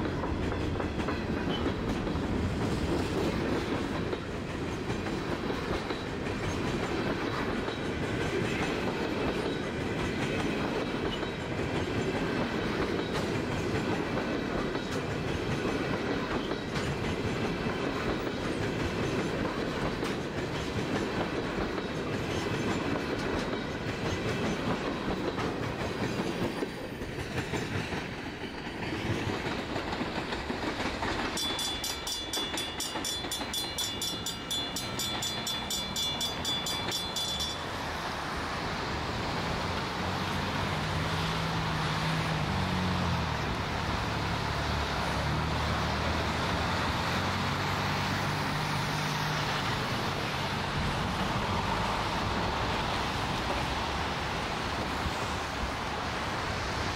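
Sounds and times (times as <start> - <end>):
train cars rumbling and clacking: 0.0 - 56.9
crossing bell ringing: 31.2 - 38.2.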